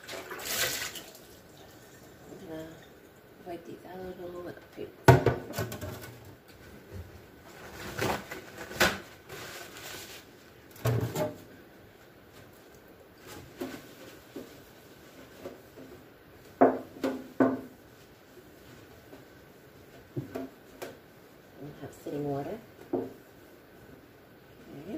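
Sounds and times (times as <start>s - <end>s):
plastic bins knocking and clattering: 5.1s - 6.4s, 10.7s - 11.5s
paper towel rustling: 6.6s - 10.8s, 11.5s - 16.6s, 17.2s - 24.9s.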